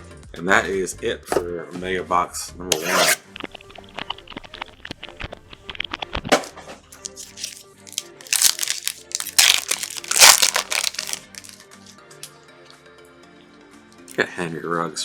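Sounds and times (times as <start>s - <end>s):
quiet background music: 0.0s - 15.0s
packaging crinkling and tearing: 6.4s - 11.6s.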